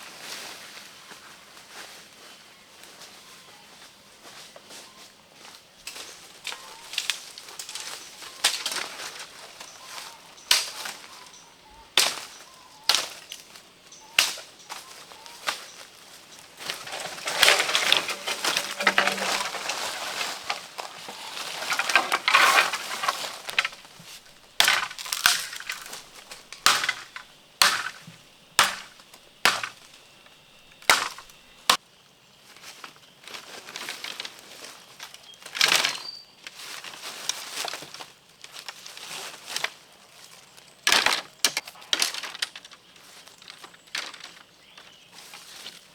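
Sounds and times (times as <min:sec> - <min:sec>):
crackling and crunching: 0:16.5 - 0:31.8.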